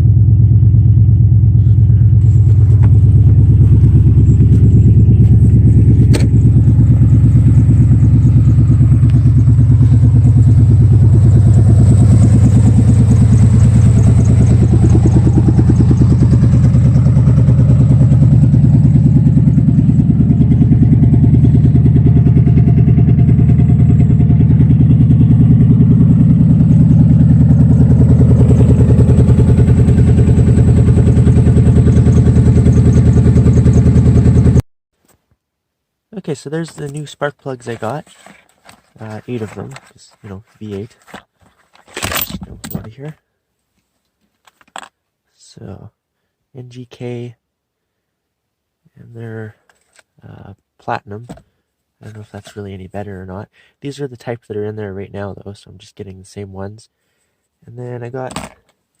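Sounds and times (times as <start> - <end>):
truck engine idling: 0.0 - 34.6.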